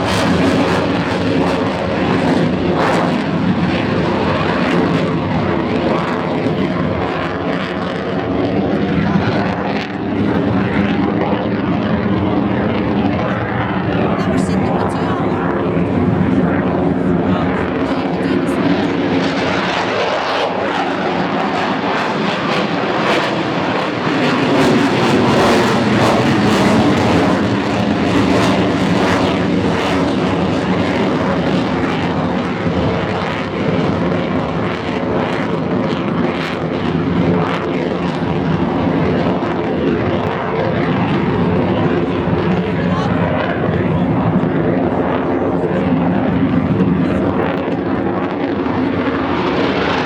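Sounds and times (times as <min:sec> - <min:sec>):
aircraft engine drone: 0:00.0 - 0:50.0.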